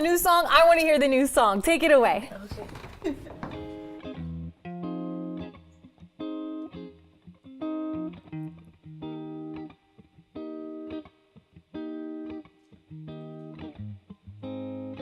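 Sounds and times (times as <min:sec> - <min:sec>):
guitar playing slow chords: 0:03.8 - 0:15.0.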